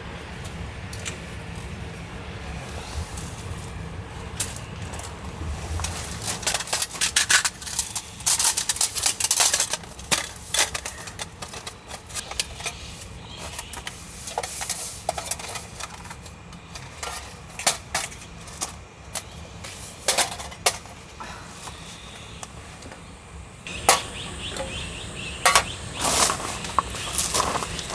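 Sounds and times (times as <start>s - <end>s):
small objects clicking and clinking: 5.8s - 12.8s.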